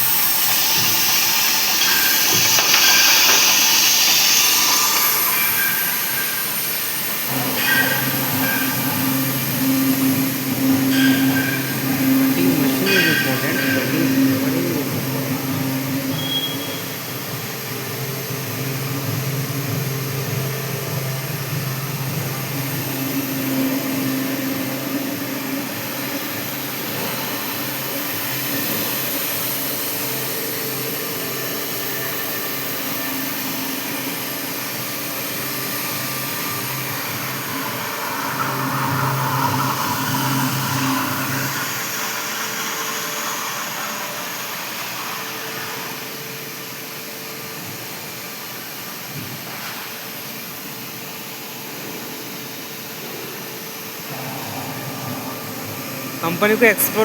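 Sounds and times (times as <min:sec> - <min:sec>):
blower-like hiss: 0:00.0 - 0:16.2.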